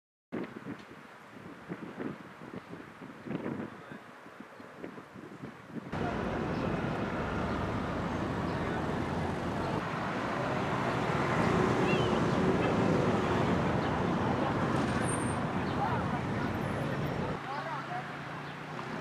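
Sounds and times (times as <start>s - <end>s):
traffic noise: 0.4s - 19.0s
murmur of voices: 5.9s - 19.0s.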